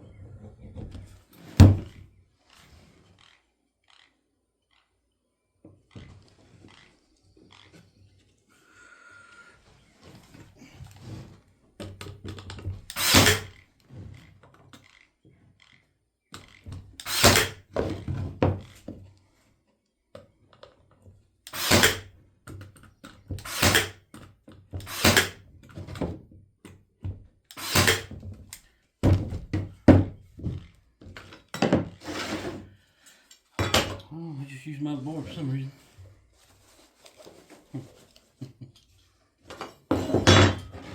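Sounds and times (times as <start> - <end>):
nail gun firing into wood: 12.9 - 13.6, 16.4 - 17.7, 21.5 - 22.1, 23.4 - 24.0, 24.8 - 25.4, 27.5 - 28.2.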